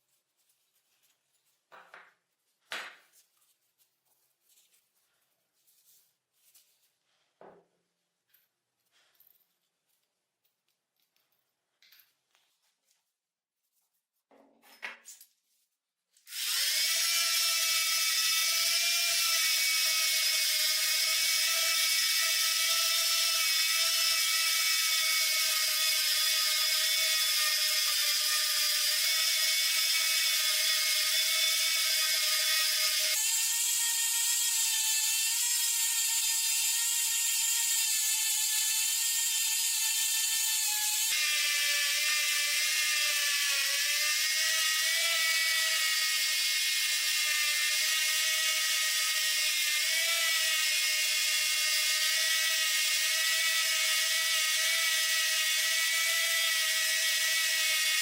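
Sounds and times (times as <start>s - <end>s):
electric power tool whining: 16.3s - 58.0s.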